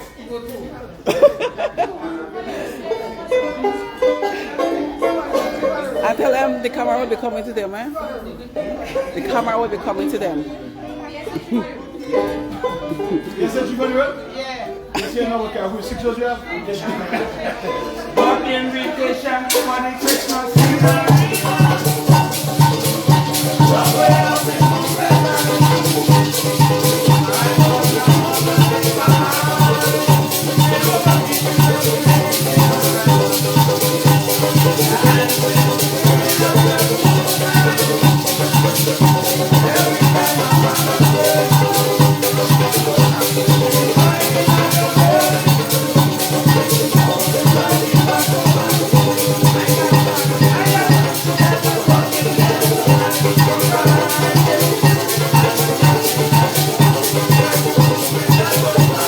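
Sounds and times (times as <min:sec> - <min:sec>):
maracas shaken in fast rhythm: 0:03.7 - 0:07.9, 0:17.6 - 0:59.0
pitched instruments: 0:19.5 - 0:59.0.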